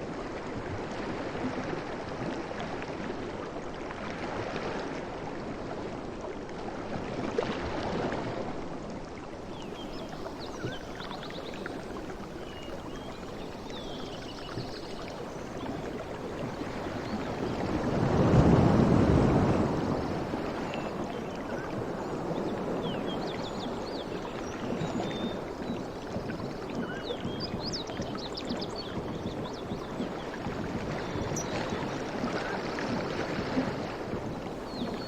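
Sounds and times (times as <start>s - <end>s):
sea waves washing on shore: 0.0s - 35.0s.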